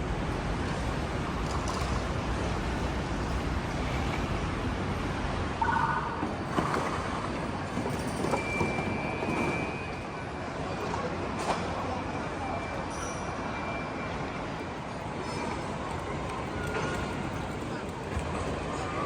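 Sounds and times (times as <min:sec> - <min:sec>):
brief high tone: 0:05.6 - 0:06.2.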